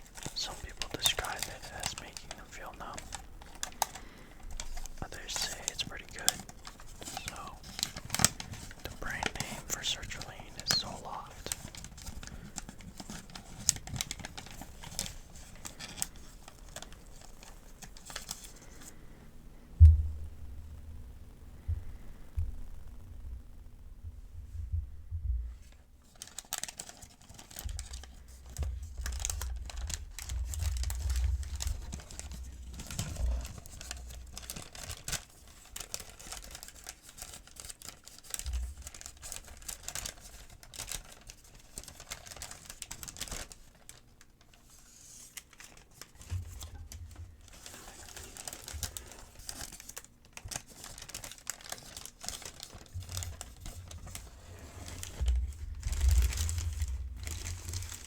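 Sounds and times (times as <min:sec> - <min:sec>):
paper crinkling: 0:00.0 - 0:19.1, 0:26.0 - 0:58.0.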